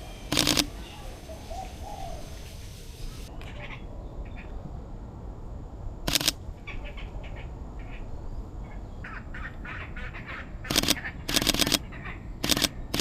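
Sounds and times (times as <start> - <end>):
camera shutter burst: 0.0 - 3.3, 6.1 - 6.4, 10.7 - 11.8, 12.4 - 13.0
birds chirping: 0.0 - 4.7, 6.1 - 13.0.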